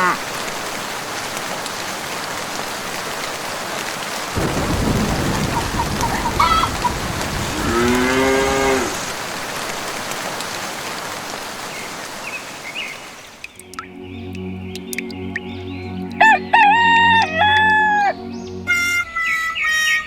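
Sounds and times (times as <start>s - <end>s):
steady rain: 0.0s - 13.6s
thunder rumbling: 4.4s - 9.2s
cow mooing: 7.5s - 9.0s.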